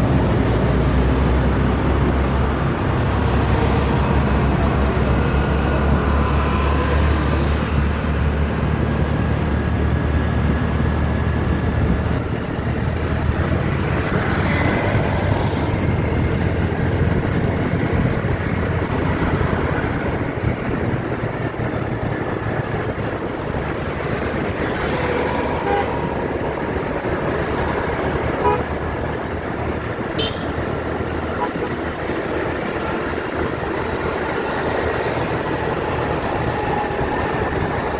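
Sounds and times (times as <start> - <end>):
vehicle engines running: 0.0 - 37.9
car horn toots: 28.4 - 28.7, 30.2 - 30.7.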